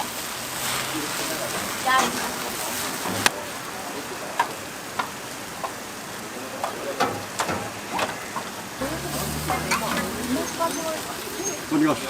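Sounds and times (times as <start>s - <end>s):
food sizzling on griddle: 0.0s - 12.0s
utensils clicking and tapping: 4.4s - 5.8s, 6.6s - 11.6s.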